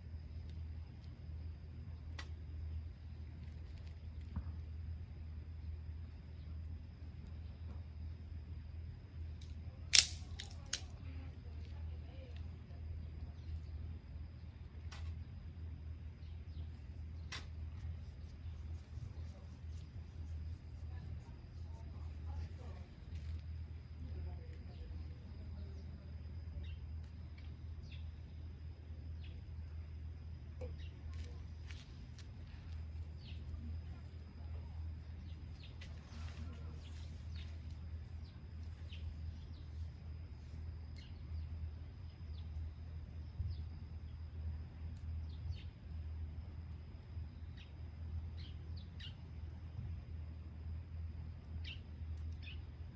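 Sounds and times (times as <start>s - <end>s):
insects chirping: 0.0s - 52.9s
steady low hum: 0.0s - 52.9s
bonfire cracking and popping: 9.9s - 10.8s.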